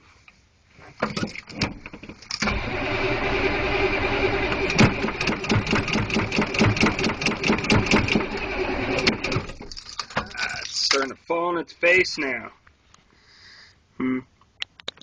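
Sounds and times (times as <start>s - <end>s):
diesel engine cranking: 1.2s - 10.8s
diesel engine knocking unevenly: 3.7s - 9.6s.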